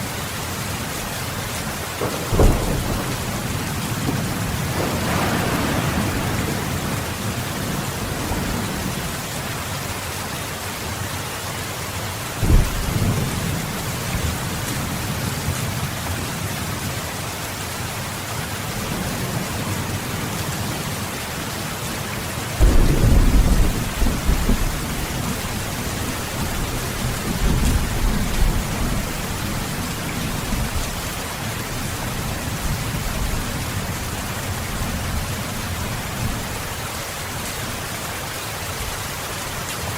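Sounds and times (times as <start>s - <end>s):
heavy rain: 0.0s - 39.9s
thunder: 2.0s - 9.3s, 12.4s - 14.4s, 22.6s - 30.9s.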